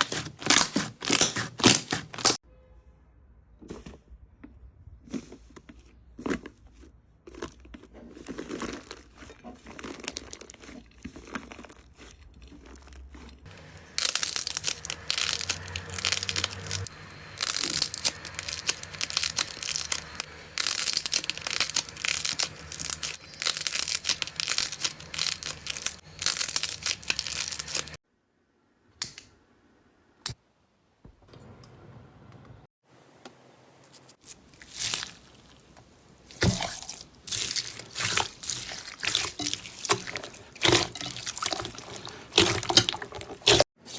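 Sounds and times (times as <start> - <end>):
slime crackling and crinkling: 0.0 - 2.4, 6.2 - 28.0, 33.9 - 43.9.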